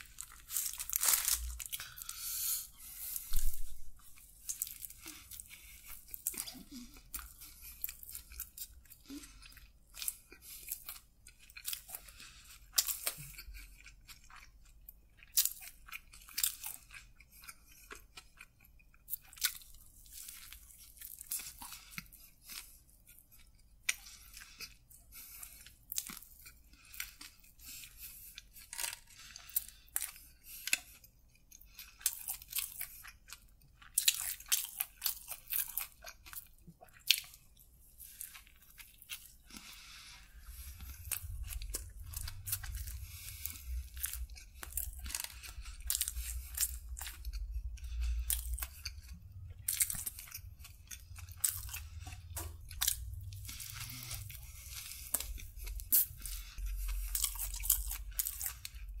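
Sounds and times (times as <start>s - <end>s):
close chewing and biting: 0.0s - 59.0s
low rumble: 40.3s - 57.6s.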